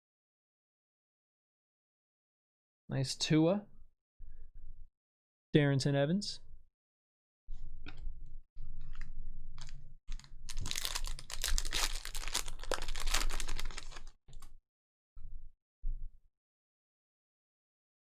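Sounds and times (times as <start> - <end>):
wrappers crinkling and rustling: 8.9 - 14.5.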